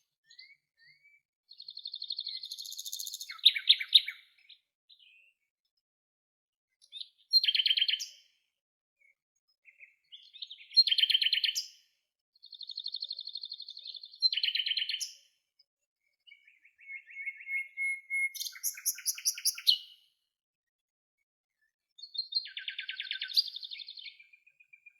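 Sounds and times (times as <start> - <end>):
songbird trilling: 16.8 - 19.8.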